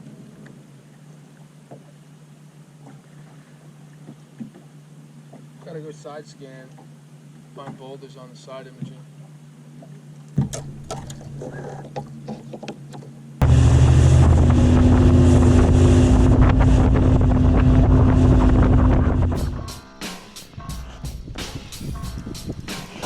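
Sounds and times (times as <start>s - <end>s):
outboard motor running: 9.1s - 19.8s
wind buffeting microphone: 13.4s - 19.7s, 20.8s - 22.7s.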